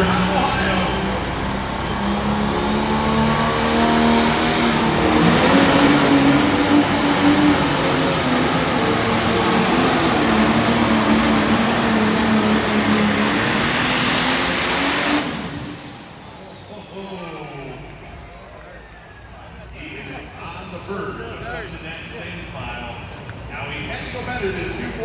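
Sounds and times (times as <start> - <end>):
turbo whine: 0.0 - 19.2
diesel engine under load: 0.0 - 25.0.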